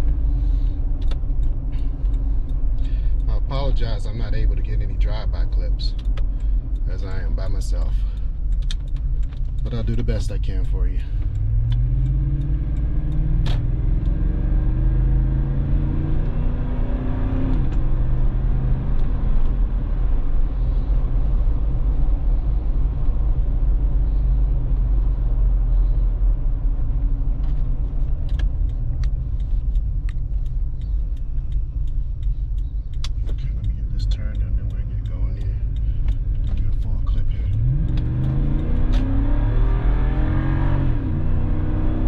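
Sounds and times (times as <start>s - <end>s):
car engine accelerating: 0.0s - 42.0s
light clicks: 28.0s - 39.1s.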